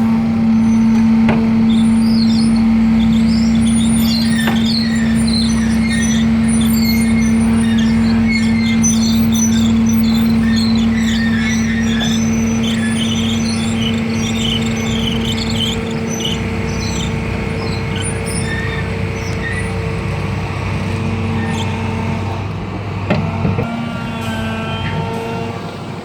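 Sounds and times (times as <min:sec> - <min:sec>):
diesel engine humming: 0:00.0 - 0:26.0
high chirps or squeaks: 0:01.7 - 0:19.8, 0:20.9 - 0:21.8.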